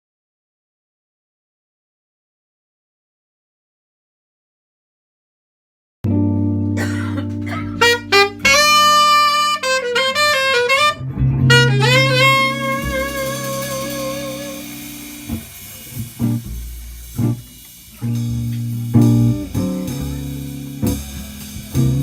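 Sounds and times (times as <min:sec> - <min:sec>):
bass notes: 0:06.1 - 0:22.0
sparse plucked notes: 0:06.1 - 0:22.0
horn melody: 0:06.8 - 0:22.0.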